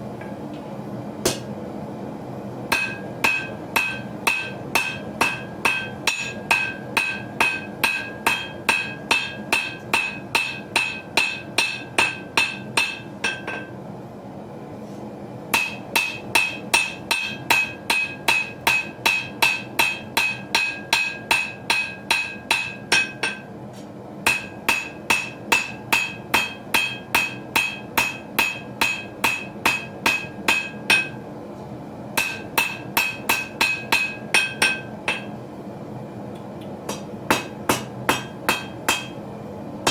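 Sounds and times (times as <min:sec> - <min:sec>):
hammer ringing on anvil: 0:02.7 - 0:13.8, 0:15.5 - 0:23.5, 0:24.2 - 0:31.2, 0:32.2 - 0:35.4, 0:36.9 - 0:39.2.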